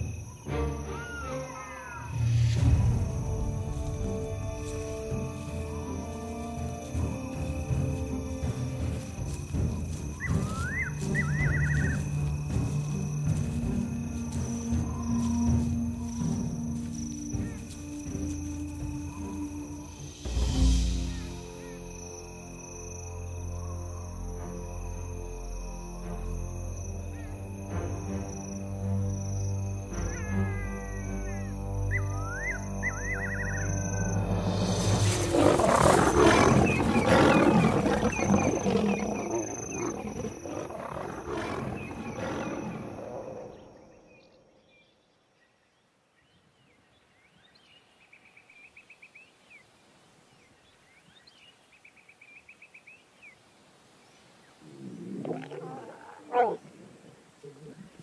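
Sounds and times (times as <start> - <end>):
faint chirping trills: 0.0 - 24.0, 28.1 - 55.0
low drone music: 0.0 - 40.2
lions snarling and roaring: 32.9 - 44.2, 54.6 - 58.0.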